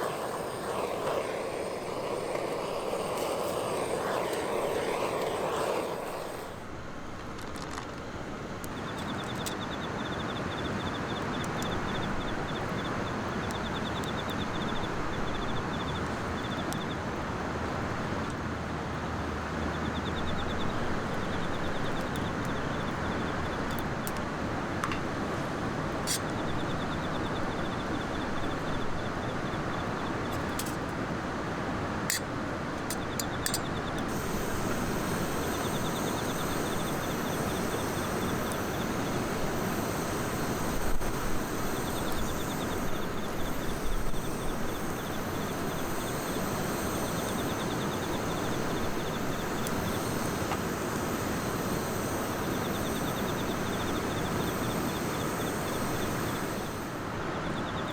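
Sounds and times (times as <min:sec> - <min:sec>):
campfire crackles: 0:00.0 - 0:09.6, 0:32.2 - 0:57.2
outdoor background noise: 0:00.0 - 0:57.9.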